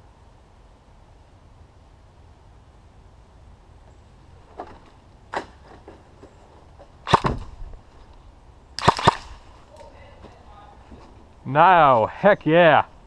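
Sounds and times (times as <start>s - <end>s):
airsoft gun shots: 7.1s - 7.5s, 8.8s - 9.4s.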